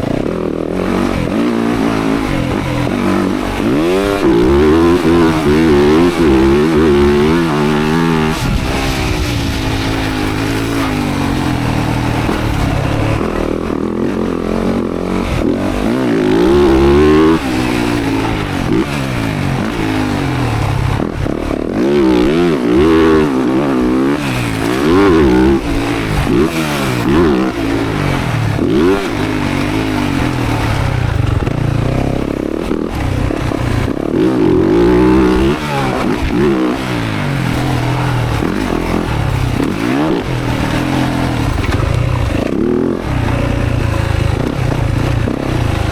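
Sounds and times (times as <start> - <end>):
dirt bike engine revving: 0.0 - 45.9.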